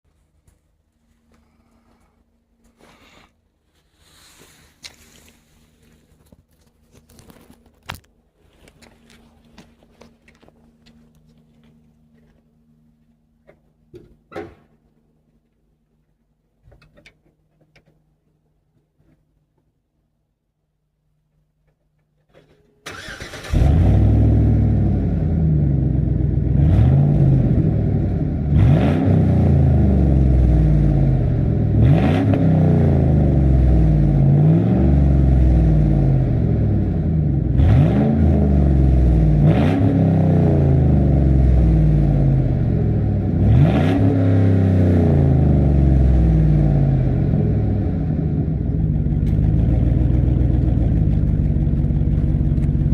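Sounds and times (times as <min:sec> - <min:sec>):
truck engine revving and idling: 0:23.0 - 0:52.9.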